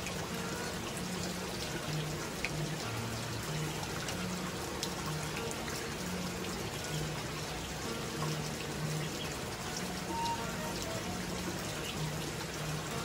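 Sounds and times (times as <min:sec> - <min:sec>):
soft background music: 0:00.0 - 0:13.0
steady rain: 0:00.0 - 0:13.0
water dripping: 0:00.0 - 0:13.0.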